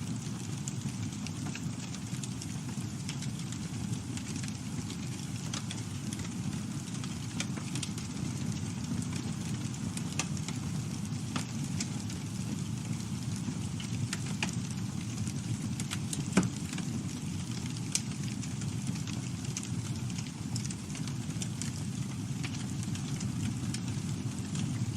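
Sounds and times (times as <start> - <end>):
campfire crackling and popping: 0.0 - 24.9.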